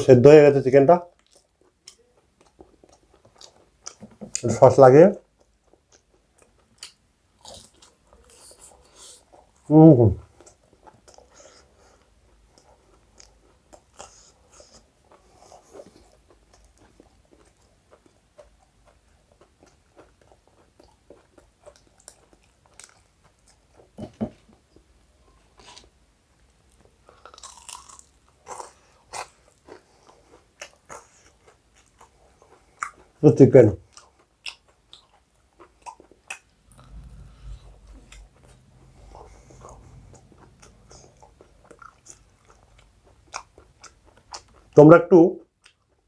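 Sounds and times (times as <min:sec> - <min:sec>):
chewing crispy food: 0:01.1 - 0:46.0.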